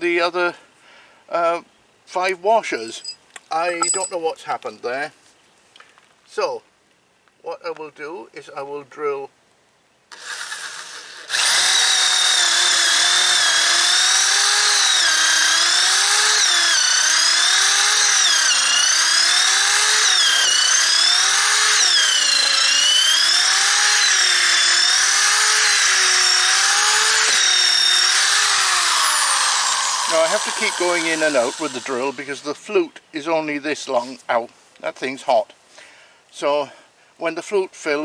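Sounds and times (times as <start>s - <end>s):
electric drill boring through timber: 10.1s - 32.6s.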